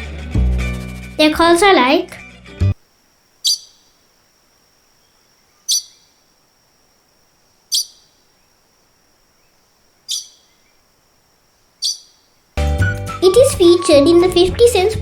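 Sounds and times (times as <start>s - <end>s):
bird short sharp high calls: 3.4s - 4.0s, 5.6s - 6.2s, 7.7s - 8.2s, 10.1s - 10.8s, 11.8s - 12.4s.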